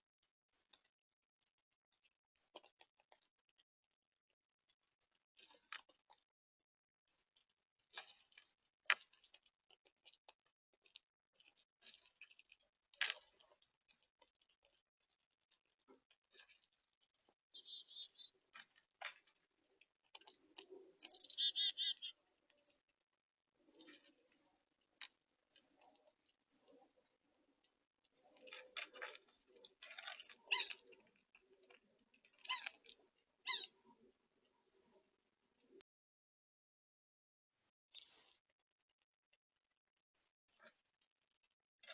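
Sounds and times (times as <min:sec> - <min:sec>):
birds pecking seed: 0:00.0 - 0:06.4, 0:07.0 - 0:35.8, 0:37.9 - 0:41.9
songbirds chipping and calling: 0:17.5 - 0:18.4, 0:20.2 - 0:22.8, 0:28.1 - 0:34.9.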